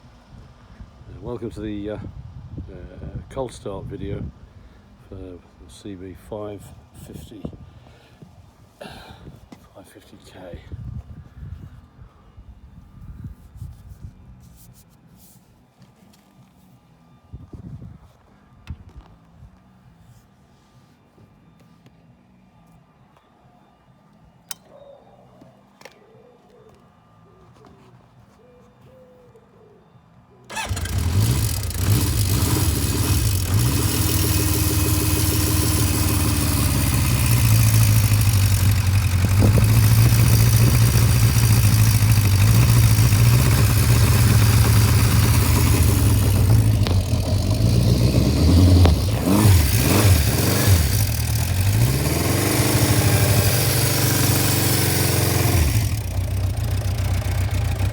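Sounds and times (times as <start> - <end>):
motorcycle engine starting and revving: 30.5 - 57.9.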